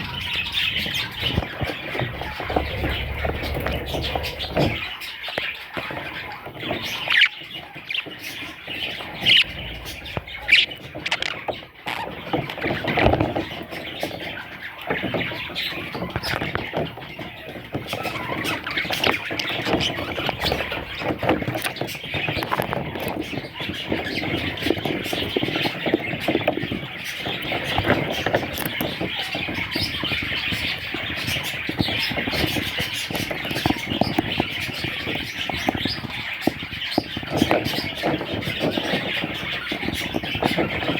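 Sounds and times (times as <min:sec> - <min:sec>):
budgerigars chattering: 0:00.0 - 0:40.9
sharp squawks: 0:09.2 - 0:12.1.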